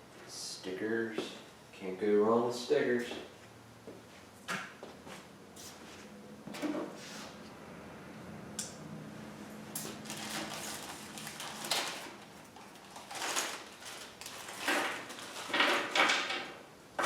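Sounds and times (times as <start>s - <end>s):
packaging rustling and scraping: 9.8s - 16.3s.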